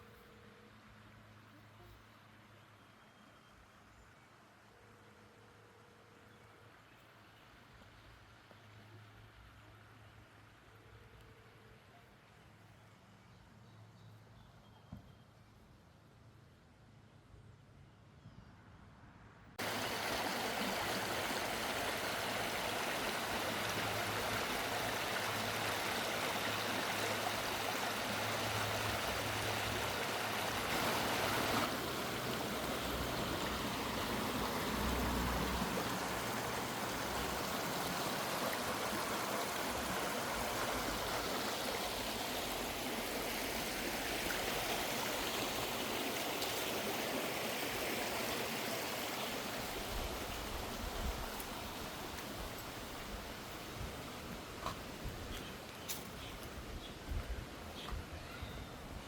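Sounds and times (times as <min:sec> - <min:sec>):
creek water rushing: 0:19.6 - 0:59.0.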